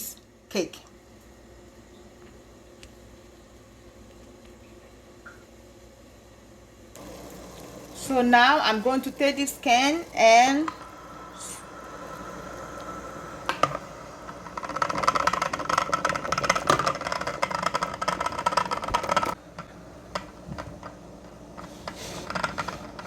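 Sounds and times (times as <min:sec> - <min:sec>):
metal cans rattling in boiling water: 0:07.0 - 0:23.0.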